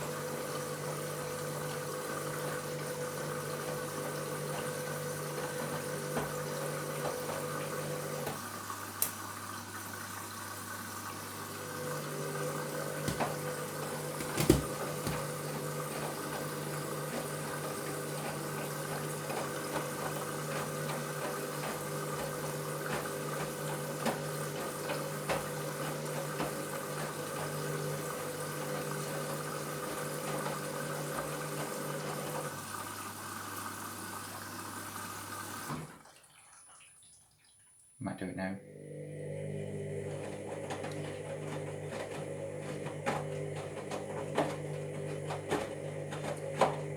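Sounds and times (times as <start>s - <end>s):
washing machine motor hum: 0.0s - 36.6s, 38.6s - 46.9s
washing machine water sounds: 0.0s - 38.0s, 38.6s - 46.9s.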